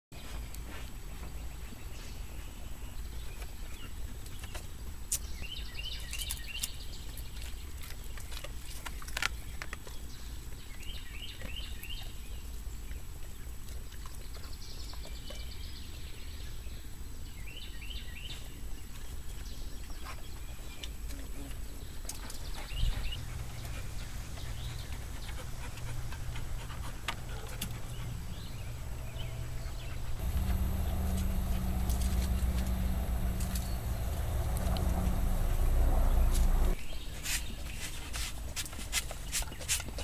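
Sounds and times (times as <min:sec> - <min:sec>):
low rumble: 0:23.2 - 0:36.8.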